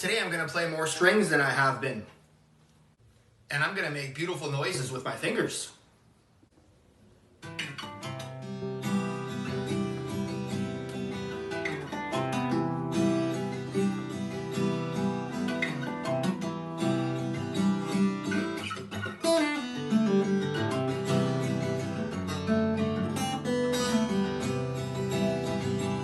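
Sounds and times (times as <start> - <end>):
fingerstyle acoustic guitar: 7.4 - 26.0.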